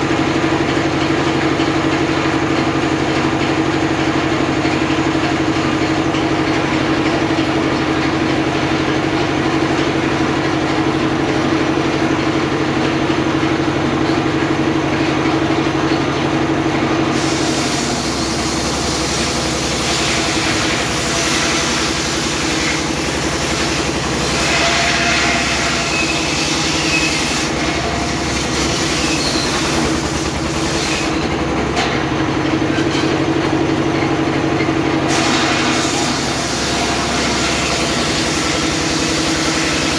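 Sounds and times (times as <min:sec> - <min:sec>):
circular saw running: 0:00.0 - 0:39.9
saw blade cutting wood: 0:17.1 - 0:31.4, 0:35.1 - 0:39.9.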